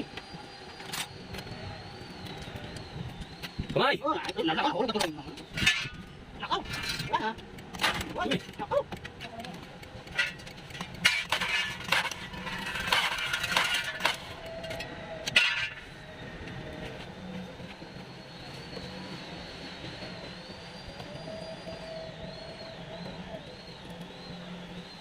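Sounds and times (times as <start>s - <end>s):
faint wavering high whistle: 11.4s - 25.0s.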